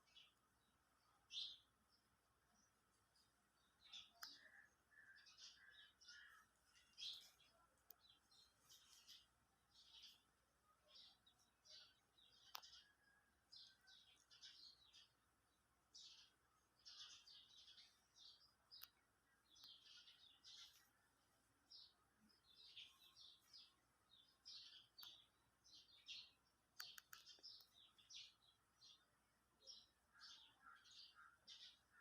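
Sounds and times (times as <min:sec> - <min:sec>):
birds chirping: 0:00.0 - 0:32.0
sharp clicks: 0:26.7 - 0:27.8.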